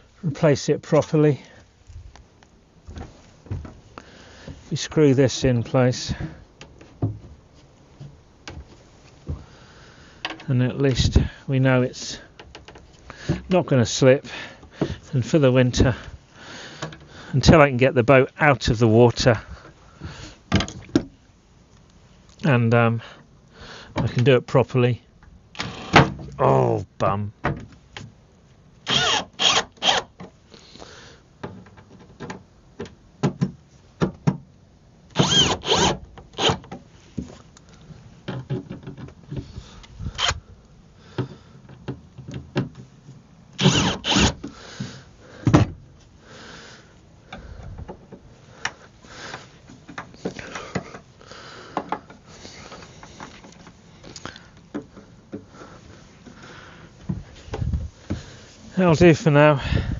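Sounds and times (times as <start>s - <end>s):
rustling: 1.4s - 4.8s
wooden boards knocking and clattering: 6.2s - 7.4s, 31.4s - 34.5s, 38.3s - 39.6s, 44.8s - 45.8s.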